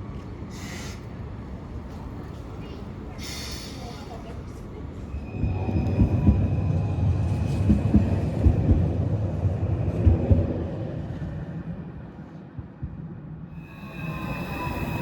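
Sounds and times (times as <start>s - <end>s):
electric train passing: 13.5s - 15.0s.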